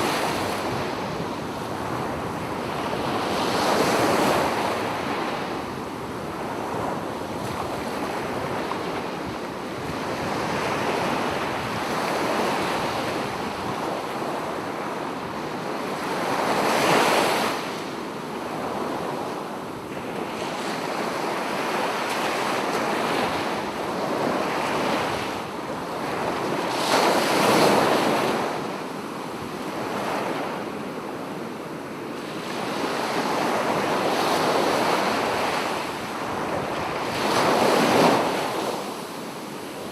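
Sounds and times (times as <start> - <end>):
surf rushing on beach: 0.0 - 17.8, 32.4 - 39.9.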